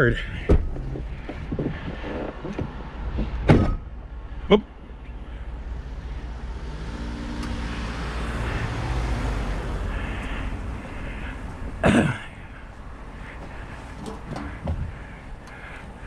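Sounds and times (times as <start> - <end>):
low engine rumble: 0.0 - 16.0
motor vehicle passing: 4.1 - 16.0.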